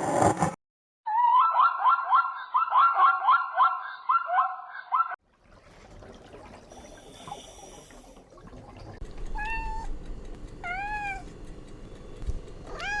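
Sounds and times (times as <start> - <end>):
cat meowing: 9.3 - 9.9, 10.6 - 11.3, 12.7 - 13.0.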